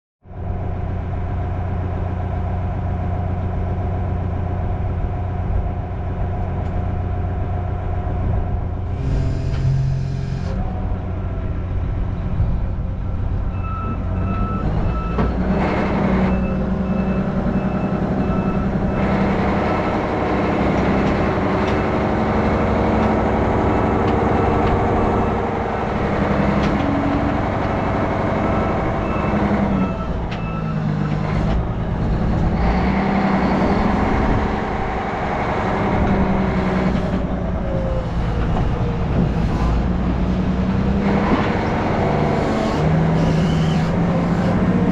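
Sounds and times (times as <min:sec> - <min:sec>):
heavy diesel equipment running: 0:00.2 - 0:44.9
reversing alarm beeping: 0:16.2 - 0:19.0.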